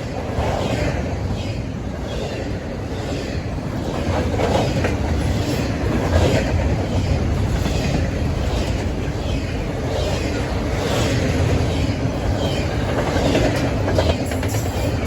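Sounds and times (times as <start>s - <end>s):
freight train rumble: 0.0s - 15.0s
wheels clacking over rail joints: 3.8s - 15.0s.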